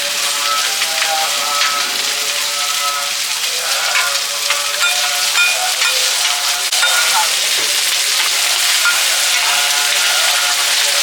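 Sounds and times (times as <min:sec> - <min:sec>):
omelette sizzling in hot oil: 0:00.0 - 0:11.0
metal spatula scraping a pan: 0:00.1 - 0:10.6.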